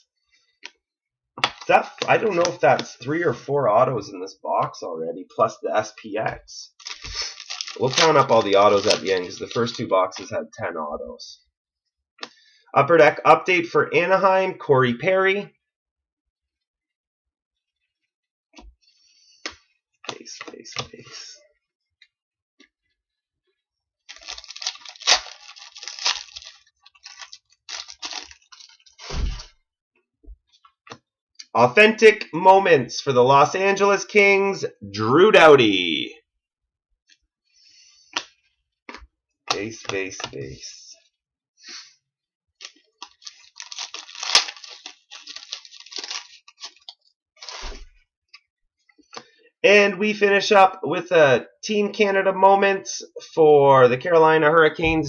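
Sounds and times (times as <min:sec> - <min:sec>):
card packaging crinkling: 0:01.4 - 0:02.9, 0:06.8 - 0:10.3, 0:24.1 - 0:29.2, 0:42.6 - 0:47.7
low thump: 0:29.1 - 0:29.5.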